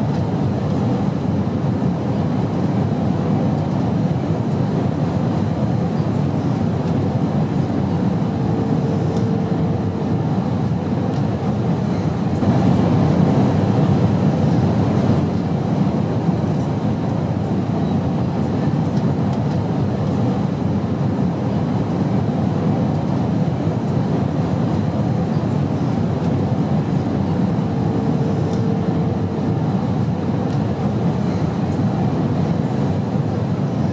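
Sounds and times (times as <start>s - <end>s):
airplane low rumble: 0.0s - 33.9s
faint hum: 5.6s - 20.7s, 23.0s - 33.9s.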